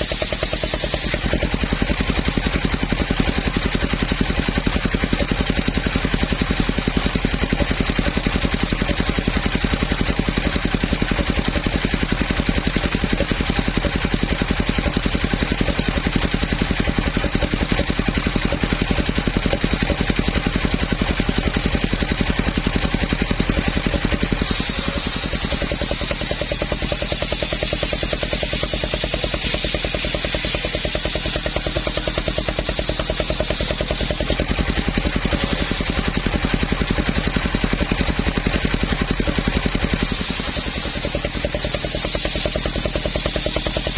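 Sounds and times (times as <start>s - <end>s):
sawmill engine pulsing: 0.0s - 43.9s
bright hissing high sound: 24.4s - 30.8s, 40.0s - 42.7s.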